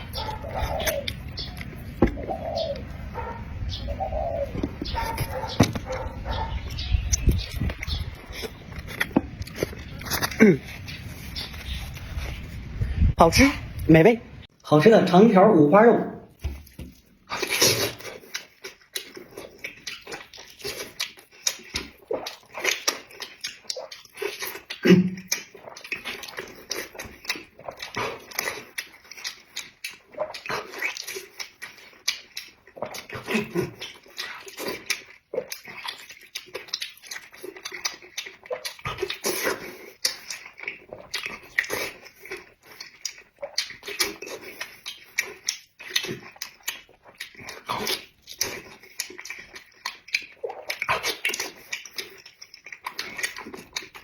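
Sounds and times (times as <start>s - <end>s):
mouth smacks: 0.0s - 2.9s, 17.3s - 54.0s
chewing with wet clicks: 0.0s - 12.0s, 16.6s - 54.0s.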